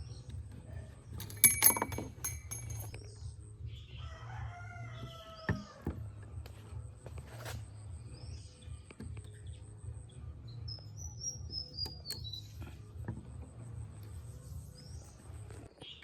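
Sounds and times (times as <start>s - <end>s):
small birds chirping: 7.9s - 16.0s.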